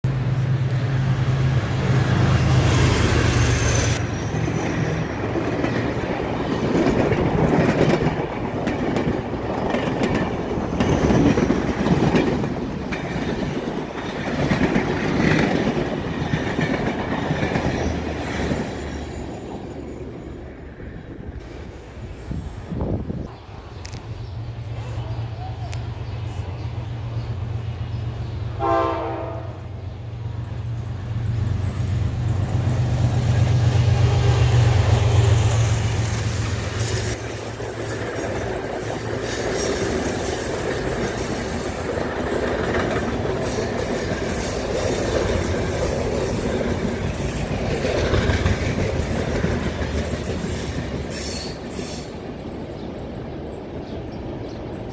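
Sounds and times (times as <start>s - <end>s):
train wheels clacking on rails: 1.8s - 19.2s, 30.4s - 54.9s
locomotive engine drone: 17.6s - 49.9s
train horn blast: 28.6s - 29.8s.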